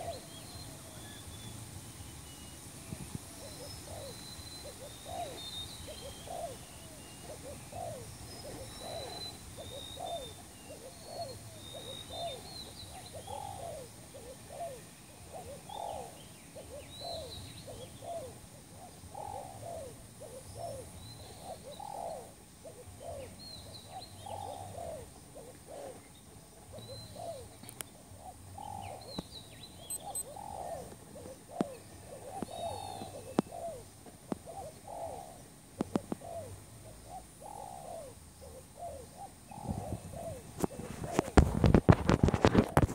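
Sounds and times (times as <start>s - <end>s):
doves cooing: 0.0s - 0.6s, 3.4s - 29.2s, 29.9s - 42.9s
small birds chirping: 0.0s - 42.9s
sharp clicks: 29.9s - 30.2s.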